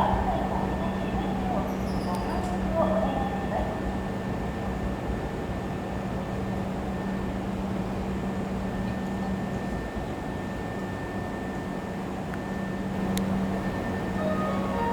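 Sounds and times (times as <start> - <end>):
electric train humming: 0.0 - 8.8, 11.6 - 14.9
faint high whine: 9.0 - 14.9.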